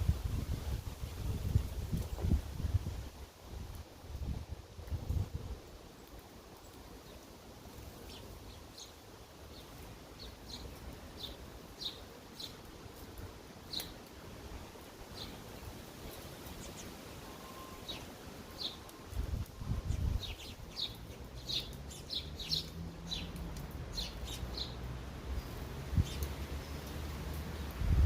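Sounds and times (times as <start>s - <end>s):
sparrows chirping: 6.0s - 14.0s, 15.0s - 27.8s.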